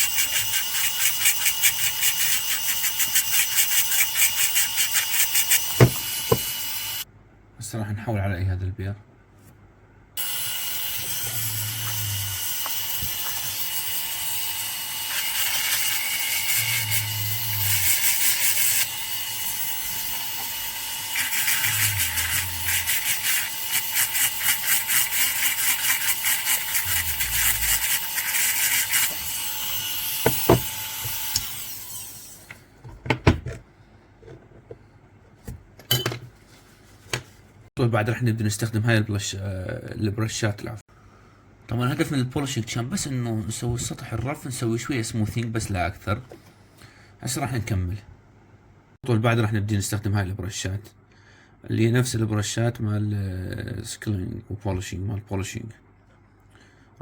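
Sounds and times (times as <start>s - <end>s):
dental drill whining: 0.0s - 7.0s, 10.2s - 32.5s.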